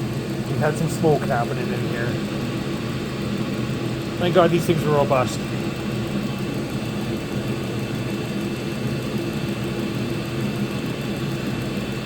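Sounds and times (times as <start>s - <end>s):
air heater fan humming: 0.0s - 12.0s.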